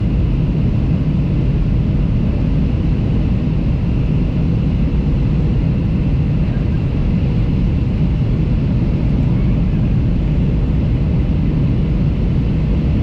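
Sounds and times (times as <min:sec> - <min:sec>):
aircraft engine rumble: 0:00.0 - 0:13.0.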